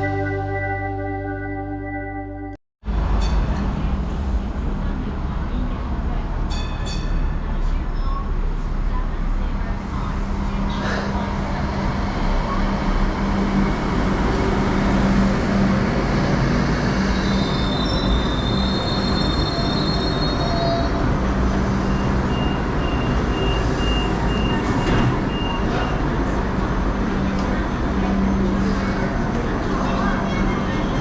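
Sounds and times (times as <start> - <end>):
train rumbling: 0.0 - 1.5, 2.8 - 31.0.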